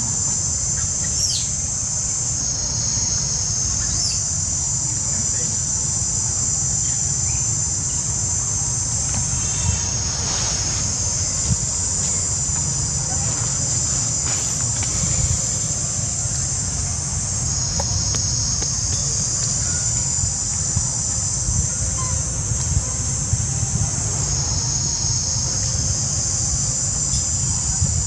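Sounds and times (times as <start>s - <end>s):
insects chorus: 0.0s - 28.0s
low rumble: 7.1s - 24.7s.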